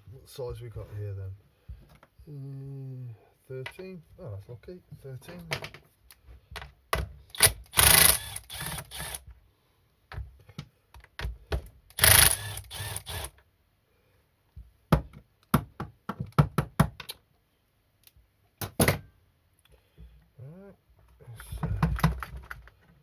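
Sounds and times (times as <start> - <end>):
ratchet wrench clicking: 7.4 - 9.2, 12.0 - 13.3.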